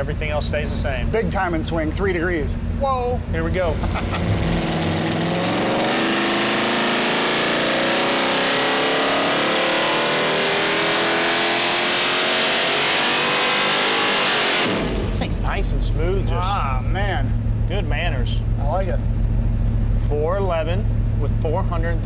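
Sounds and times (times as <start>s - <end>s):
engine revving at full throttle: 3.4s - 19.0s.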